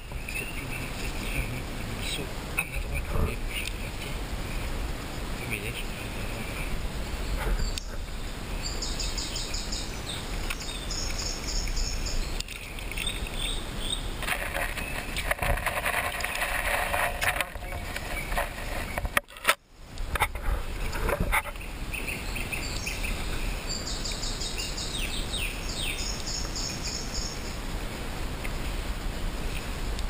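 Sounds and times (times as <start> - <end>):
outdoor background noise: 0.0 - 30.0
small bird chirping: 6.3 - 15.4, 17.4 - 19.2, 20.8 - 27.6.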